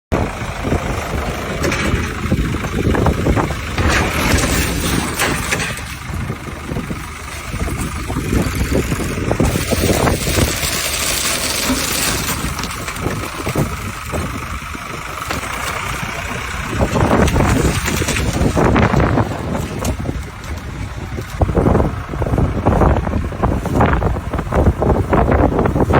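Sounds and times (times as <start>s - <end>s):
engine running: 0.1s - 25.9s
metal clanks and knocks: 1.2s - 14.4s, 15.0s - 20.6s.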